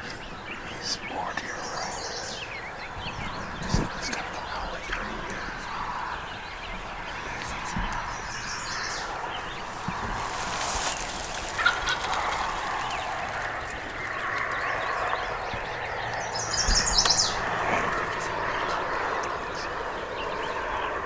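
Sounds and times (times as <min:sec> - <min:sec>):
turkey gobbling: 0:09.0 - 0:15.1.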